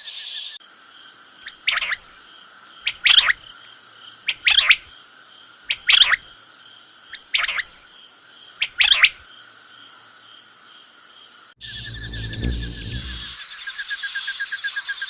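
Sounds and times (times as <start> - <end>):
insect drone: 0.2 - 13.6
low rumble: 11.6 - 13.4
rapid pulsing trill: 11.6 - 13.4.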